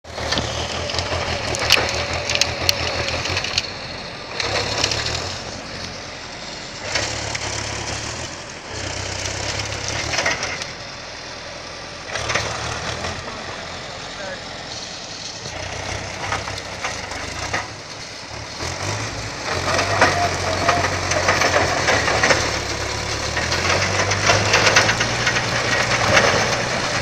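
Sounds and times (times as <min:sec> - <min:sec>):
tractor diesel engine under load: 0:00.0 - 0:27.0
sharp cracks: 0:00.1 - 0:06.0.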